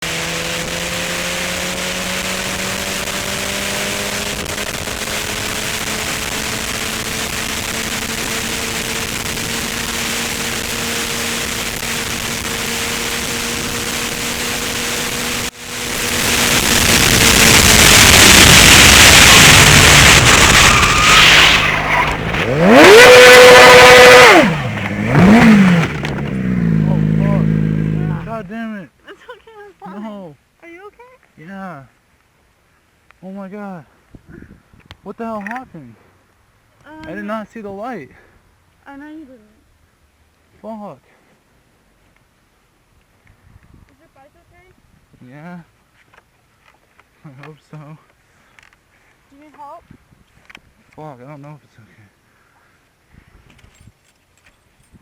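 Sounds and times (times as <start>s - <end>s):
loud pitched sound: 0.0s - 28.5s
motorcycle engine running: 0.0s - 28.5s
loud rushing noise: 4.2s - 28.3s
wind noise: 34.1s - 35.0s, 43.2s - 45.2s, 49.8s - 50.7s, 53.1s - 54.0s.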